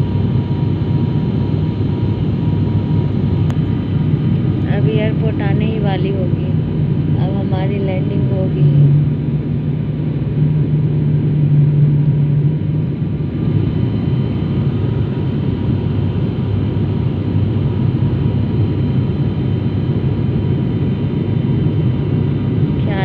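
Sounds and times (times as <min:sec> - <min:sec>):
airliner cabin rumble: 0:00.0 - 0:23.0
low hum: 0:00.0 - 0:23.0.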